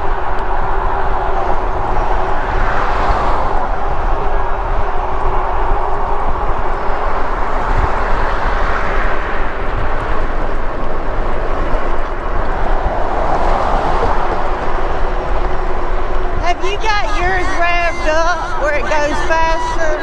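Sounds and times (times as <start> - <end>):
road noise: 0.0 - 20.0
wind noise on microphone: 0.0 - 20.0.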